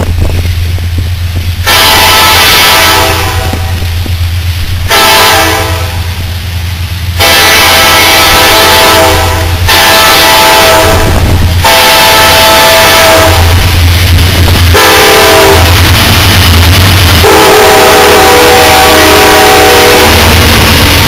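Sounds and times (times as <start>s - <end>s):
low rumble of train: 0.0s - 21.0s
locomotive horn blasts: 1.6s - 3.8s, 4.9s - 6.0s, 7.2s - 13.6s, 14.7s - 15.7s, 17.2s - 20.2s.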